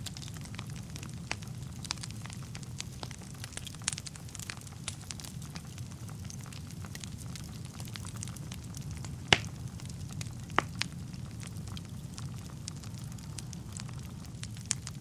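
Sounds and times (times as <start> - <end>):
burning logs popping: 0.0 - 15.0
low rumble of flames: 0.0 - 15.0
small fire crackles: 0.0 - 15.0.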